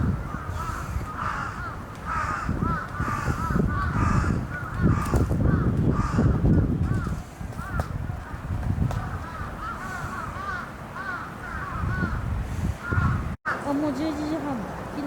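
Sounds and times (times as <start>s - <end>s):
birds calling in chorus: 0.0s - 8.4s, 9.0s - 15.0s
wind rumble on microphone: 0.0s - 13.4s.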